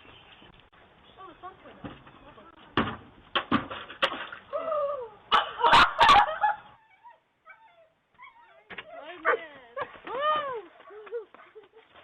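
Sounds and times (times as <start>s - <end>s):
dog whining: 6.8s - 9.1s.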